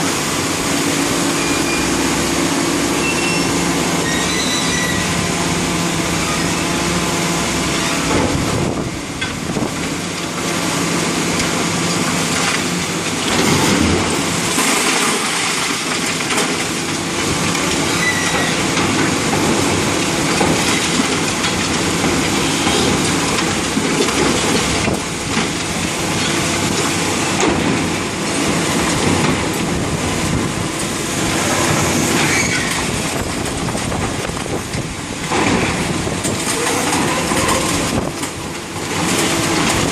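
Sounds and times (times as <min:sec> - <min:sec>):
diesel engine under load: 0:00.0 - 0:39.9
concrete crunching and grinding: 0:01.0 - 0:39.9.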